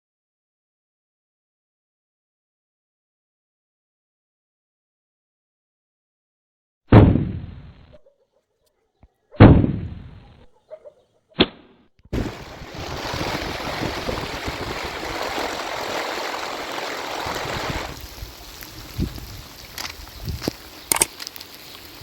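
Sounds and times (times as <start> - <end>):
thunderclap: 9.4 - 10.4, 12.1 - 19.4
heavy rain falling: 12.2 - 22.0.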